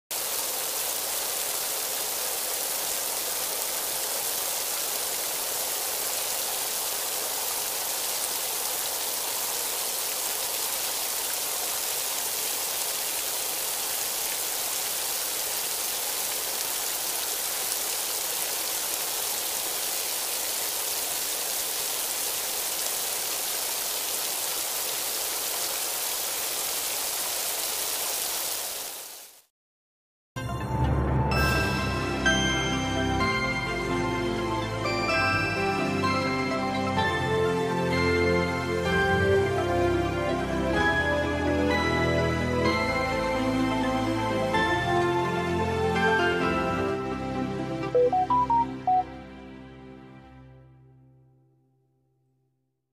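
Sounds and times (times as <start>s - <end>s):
falling rain hiss: 0.1s - 29.5s.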